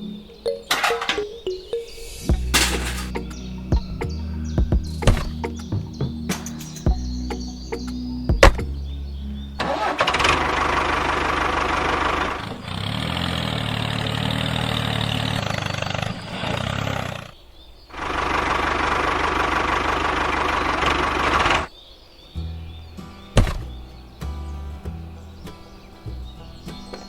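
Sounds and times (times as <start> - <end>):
rattly engine running: 2.3 - 3.3, 9.6 - 17.3, 18.0 - 21.7.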